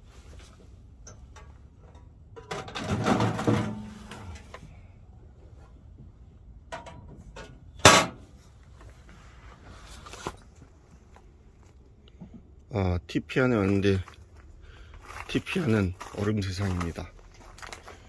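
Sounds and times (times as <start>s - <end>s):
rattling scraping handling noise: 1.2s - 4.6s, 6.8s - 8.2s.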